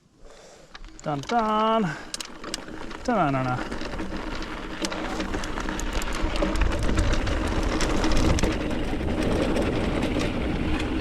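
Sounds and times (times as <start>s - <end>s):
bike tyre noise on trail: 0.0s - 11.0s
bike rattling over bumps: 0.4s - 11.0s
wind rumble on microphone: 4.8s - 11.0s.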